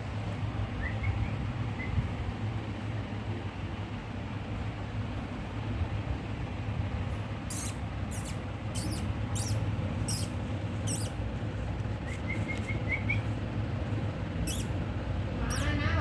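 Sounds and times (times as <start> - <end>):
steady low hum: 0.0 - 16.0
parrot high squeaks: 7.5 - 11.2, 14.5 - 14.8, 15.4 - 15.8.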